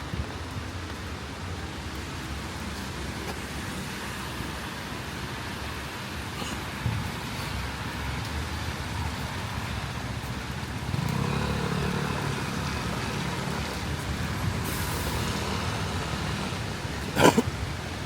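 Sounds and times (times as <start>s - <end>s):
rain and tyres hissing: 0.0s - 18.0s.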